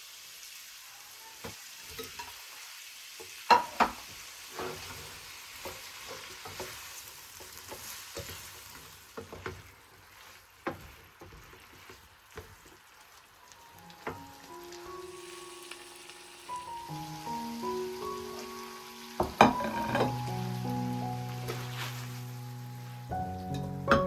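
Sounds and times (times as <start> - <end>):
food sizzling in a pan: 0.0 - 24.0
utensil knocking against pan: 19.2 - 20.2.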